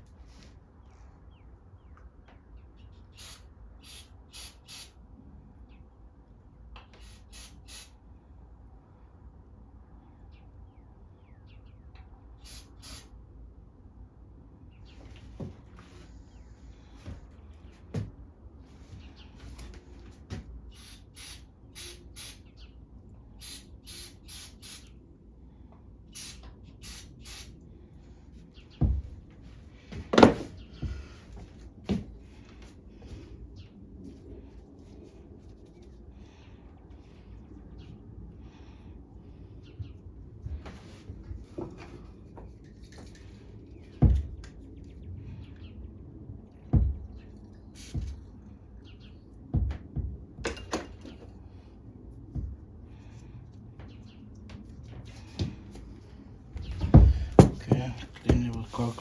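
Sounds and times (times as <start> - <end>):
sharp knocks: 56.8 - 58.6.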